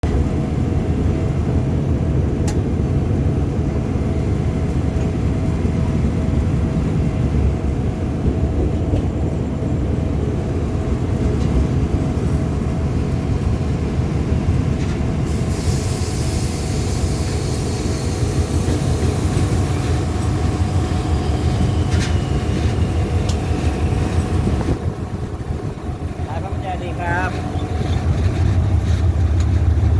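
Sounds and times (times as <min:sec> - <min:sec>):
train wheels rumbling on rails: 0:00.0 - 0:29.9.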